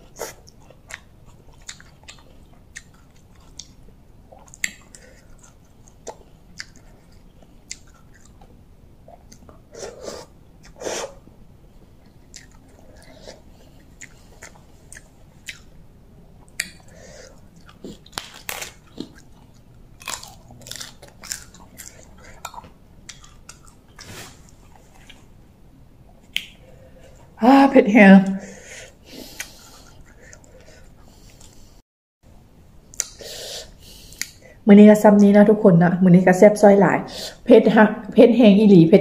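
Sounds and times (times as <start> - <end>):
close-up chewing: 0.0 - 11.1, 11.8 - 15.8, 16.4 - 25.3.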